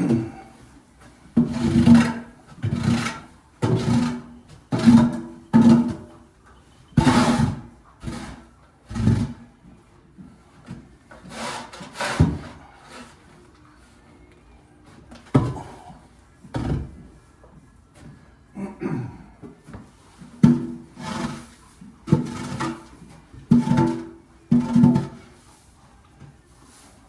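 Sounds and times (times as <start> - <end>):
tool scraping: 1.4 - 6.2, 7.0 - 9.4, 11.1 - 13.2, 20.1 - 25.7.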